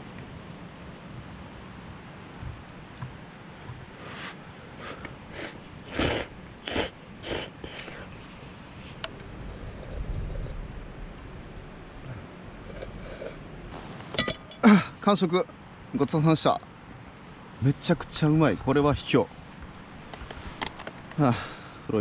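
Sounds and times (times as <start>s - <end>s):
person slurping noodles: 4.0s - 9.0s, 12.7s - 13.4s.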